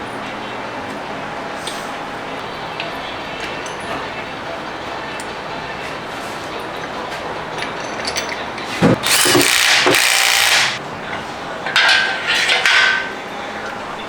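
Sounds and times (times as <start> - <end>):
power tool whining: 8.8 - 10.8
ratchet clicking: 8.8 - 10.8.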